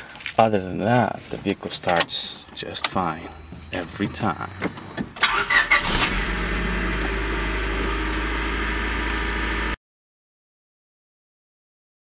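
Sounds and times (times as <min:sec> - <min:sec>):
car engine idling: 0:03.4 - 0:09.8.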